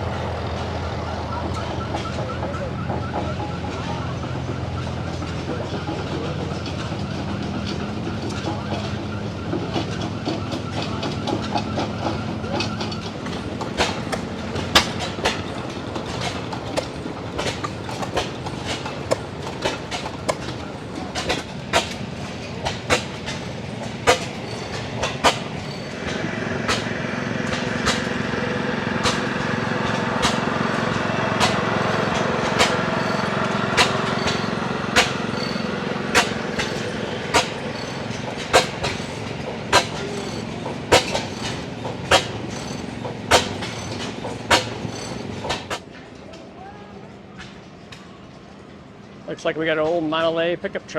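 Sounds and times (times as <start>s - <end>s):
machinery droning: 0.0s - 46.4s
sharp mechanical knocks: 12.6s - 28.2s, 31.4s - 45.8s.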